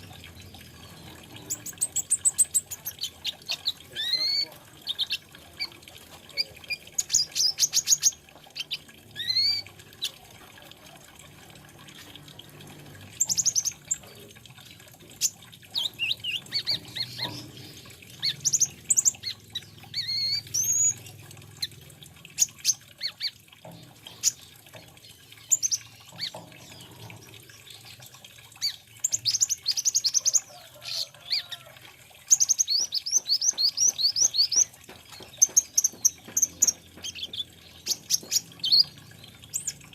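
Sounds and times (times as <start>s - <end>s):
sunbird chirping and trilling: 0.3s - 5.7s, 6.3s - 10.2s, 15.2s - 21.7s, 32.2s - 39.8s.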